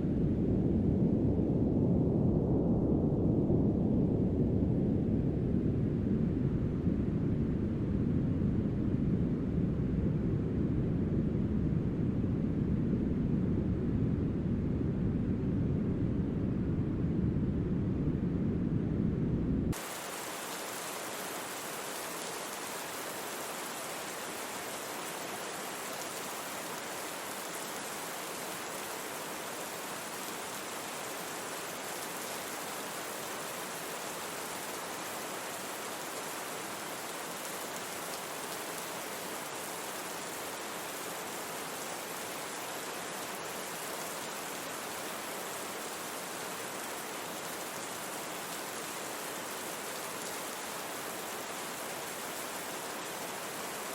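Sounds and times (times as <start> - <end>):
steady rain: 19.7 - 53.9
raindrops pattering: 19.8 - 53.9.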